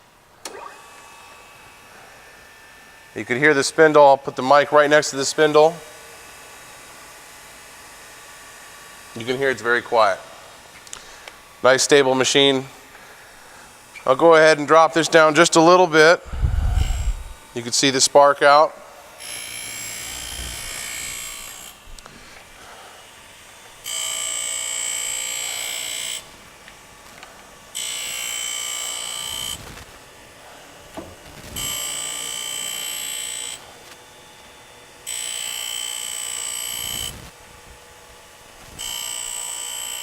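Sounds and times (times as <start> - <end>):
grinding wheel ringing whine: 16.3 - 17.6, 19.2 - 21.8, 23.5 - 30.4, 31.5 - 33.8, 34.6 - 37.2, 38.7 - 40.0.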